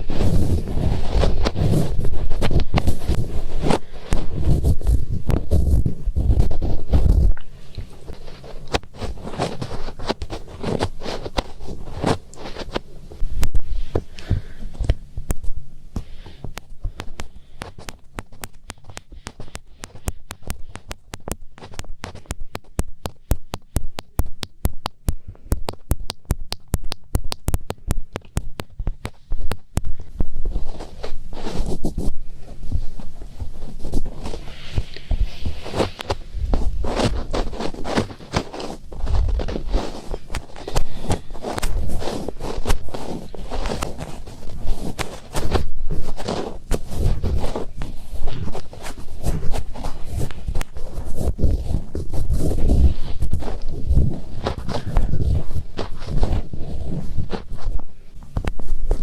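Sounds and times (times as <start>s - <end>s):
fingertips scratching microphone: 0.0s - 59.0s.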